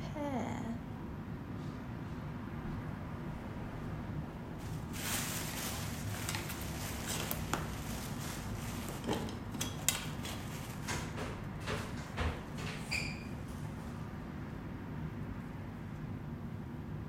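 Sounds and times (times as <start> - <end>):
steady low hum: 0.0 - 7.1
handling rustling: 4.6 - 10.9.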